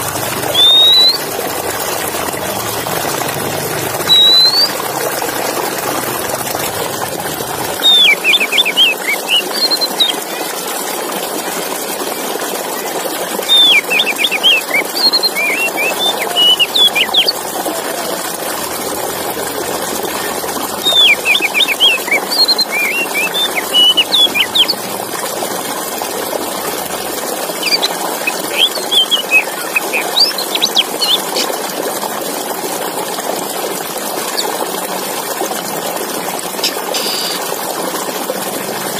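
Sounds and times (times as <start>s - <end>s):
bird singing high chirps: 0.5s - 1.3s, 4.0s - 4.8s, 7.8s - 10.2s, 13.4s - 17.4s, 20.8s - 24.8s, 27.5s - 31.5s, 37.0s - 37.4s.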